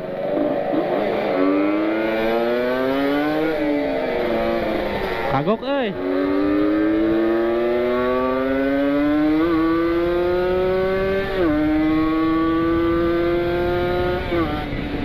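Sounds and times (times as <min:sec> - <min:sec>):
motorcycle engine at full throttle: 0:00.0 - 0:15.0
wind rush: 0:09.5 - 0:15.0.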